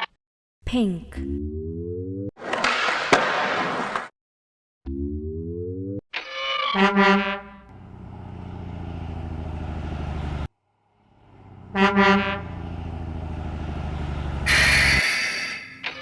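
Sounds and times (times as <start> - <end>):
truck engine running: 7.7 - 15.1
truck horn honking: 11.2 - 15.4.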